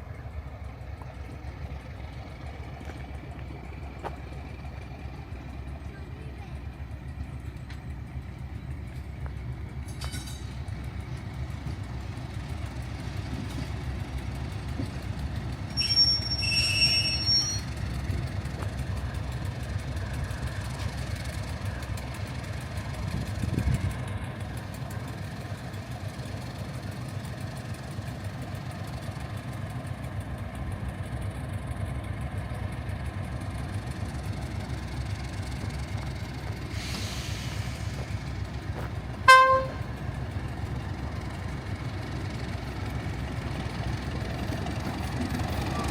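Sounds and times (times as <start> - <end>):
train rumbling: 0.0 - 45.9
train wheels squealing: 15.5 - 18.0.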